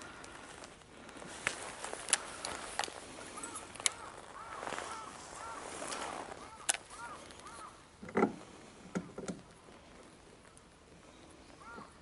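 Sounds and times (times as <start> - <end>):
sharp clicks: 6.6 - 6.9.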